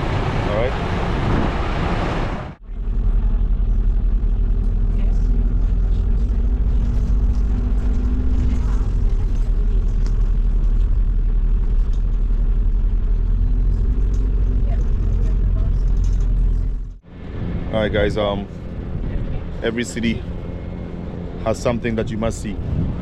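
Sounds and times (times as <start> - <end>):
bus engine rumble: 0.0 - 23.0
busy street noise: 13.4 - 23.0.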